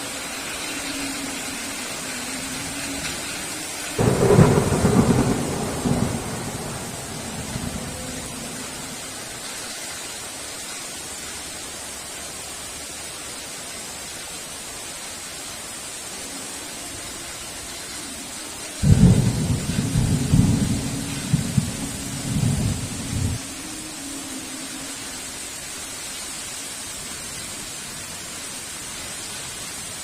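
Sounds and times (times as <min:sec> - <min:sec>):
heavy rain hissing: 0:00.0 - 0:30.0
thunder clap rumbling: 0:04.0 - 0:09.1, 0:18.8 - 0:23.4.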